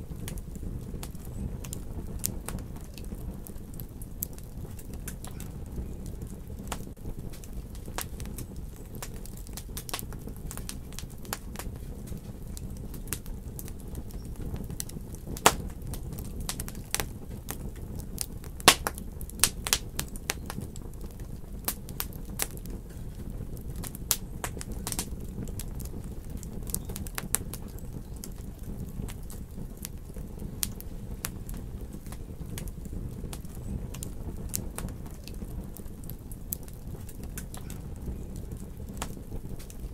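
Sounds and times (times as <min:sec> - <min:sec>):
burning wood popping: 0:00.0 - 0:39.9
fire rumbling: 0:00.0 - 0:39.9.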